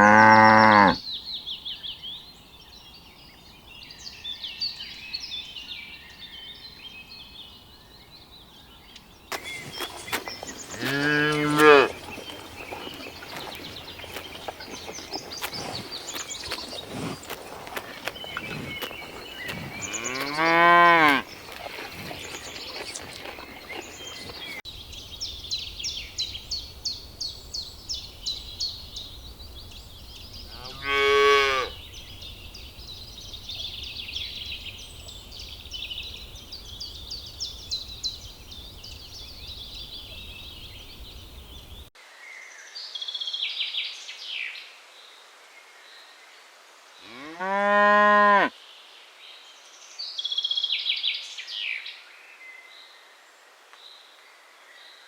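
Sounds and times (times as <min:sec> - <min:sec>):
cows mooing: 0:00.0 - 0:01.0, 0:10.7 - 0:24.6, 0:30.6 - 0:31.7.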